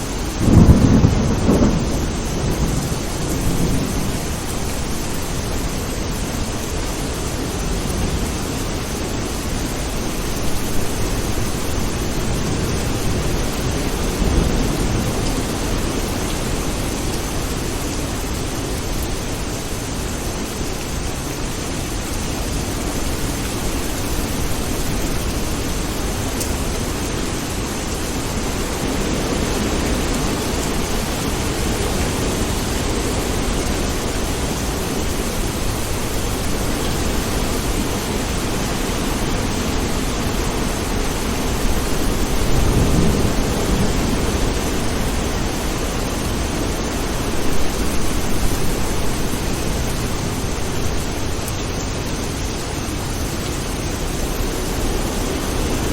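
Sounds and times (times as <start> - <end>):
low rolling thunder: 0.0 - 6.2, 10.4 - 17.2, 28.8 - 51.1
steady rain: 0.0 - 55.9.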